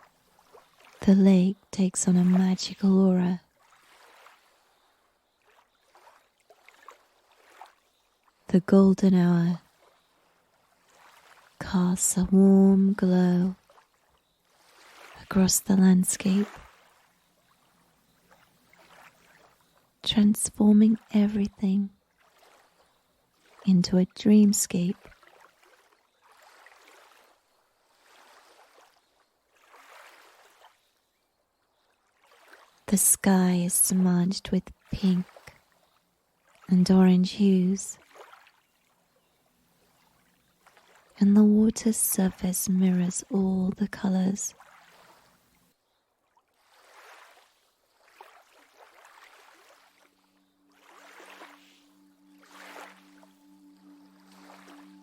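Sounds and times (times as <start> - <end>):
water lapping at shore: 0.0 - 55.0
low sustained music tone: 49.6 - 55.0.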